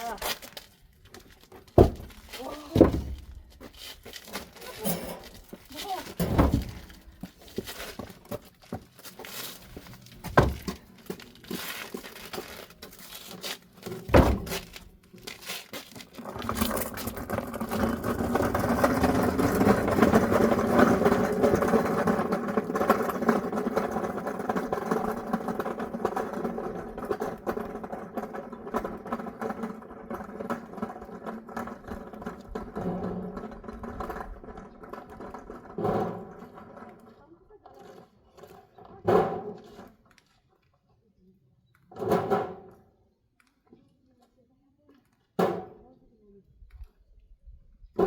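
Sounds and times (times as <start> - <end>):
firewood thudding down: 1.7 - 3.4, 6.2 - 7.0, 10.2 - 10.8, 14.1 - 14.8.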